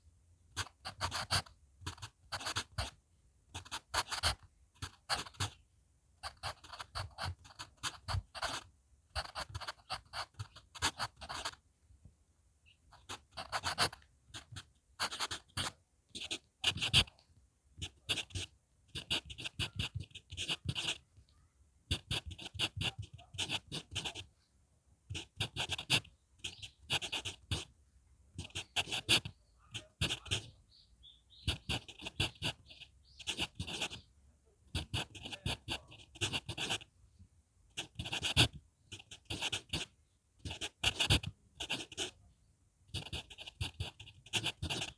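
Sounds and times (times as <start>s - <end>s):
pencil scratching on paper: 0.6s - 3.0s, 3.6s - 5.6s, 6.2s - 11.6s, 12.9s - 17.1s, 17.8s - 21.0s, 21.9s - 24.3s, 25.1s - 27.7s, 28.4s - 30.5s, 31.5s - 34.0s, 34.7s - 36.9s, 37.8s - 42.2s, 42.9s - 44.9s.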